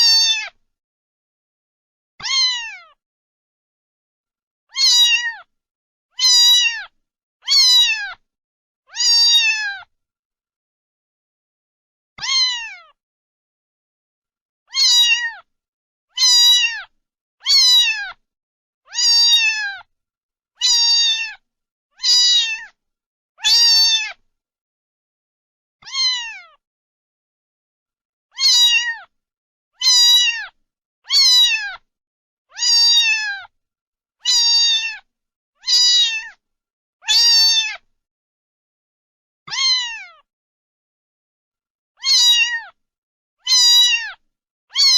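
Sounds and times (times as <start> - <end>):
cat meowing: 0.0 - 0.6, 2.2 - 3.0, 4.7 - 5.5, 6.2 - 8.2, 8.9 - 9.9, 12.2 - 13.0, 14.7 - 15.5, 16.1 - 18.2, 18.9 - 19.9, 20.6 - 21.4, 22.0 - 22.8, 23.4 - 24.2, 25.8 - 26.6, 28.3 - 29.1, 29.8 - 31.8, 32.5 - 33.5, 34.2 - 36.4, 37.0 - 37.8, 39.5 - 40.3, 42.0 - 42.8, 43.4 - 44.9.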